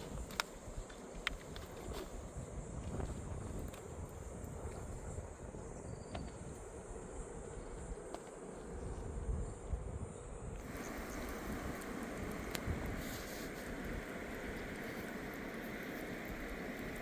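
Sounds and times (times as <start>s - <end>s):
insects chirring: 0.0s - 17.0s
low uneven rumbling: 10.6s - 17.0s
rushing hiss: 10.6s - 17.0s.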